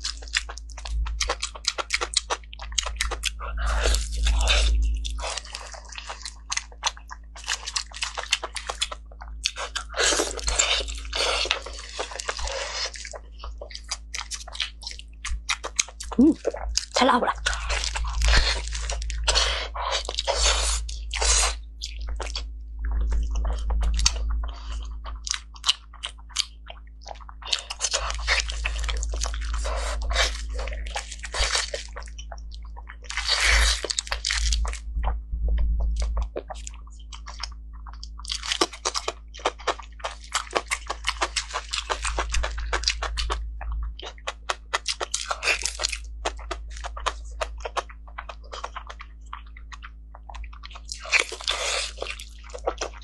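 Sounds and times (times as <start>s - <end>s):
squelchy chewing: 0.0s - 35.2s, 35.9s - 53.0s.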